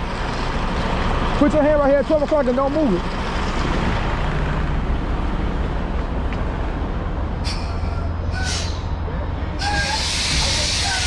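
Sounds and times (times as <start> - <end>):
truck diesel engine idling: 0.0 - 5.9, 6.7 - 11.0
compressed air hisses: 7.4 - 9.0, 9.6 - 11.0.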